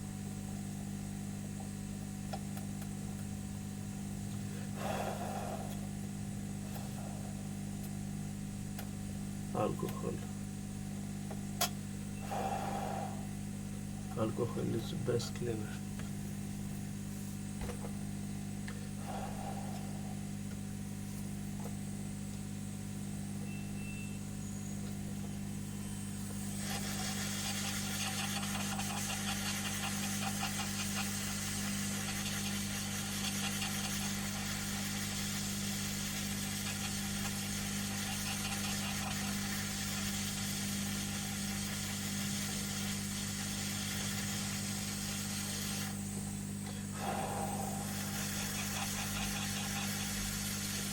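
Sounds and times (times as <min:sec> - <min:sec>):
low electrical hum: 0:00.0 - 0:50.9
hot air gun hissing: 0:04.5 - 0:06.0, 0:12.2 - 0:13.3, 0:19.0 - 0:20.3, 0:26.1 - 0:50.9.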